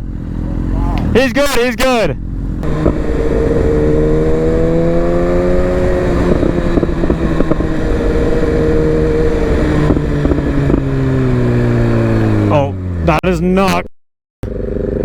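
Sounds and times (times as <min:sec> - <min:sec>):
motorcycle engine cruising: 0:00.0 - 0:13.3, 0:14.4 - 0:15.0
wind noise: 0:02.6 - 0:12.5.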